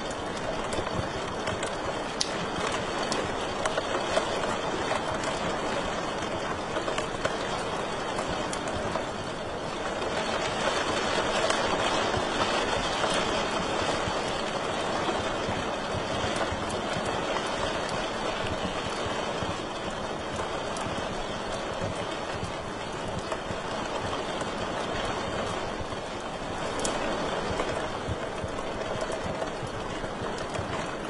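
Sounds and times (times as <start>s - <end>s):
wood fire crackling: 0.0s - 31.0s.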